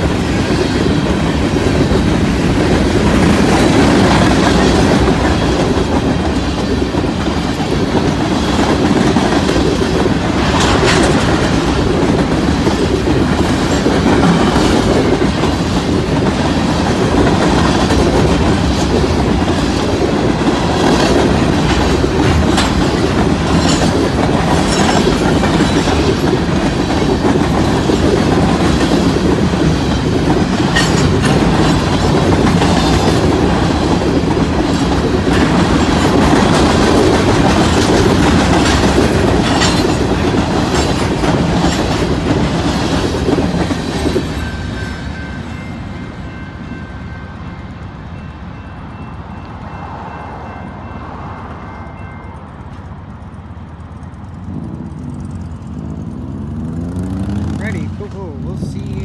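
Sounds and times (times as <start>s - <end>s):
wheels clacking over rail joints: 0.0s - 46.8s
freight train rumbling past: 0.0s - 59.0s.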